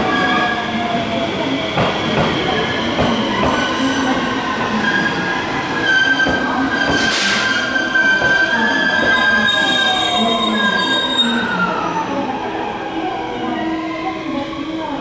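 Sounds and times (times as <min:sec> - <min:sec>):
high wheel squeal: 0:04.7 - 0:12.0.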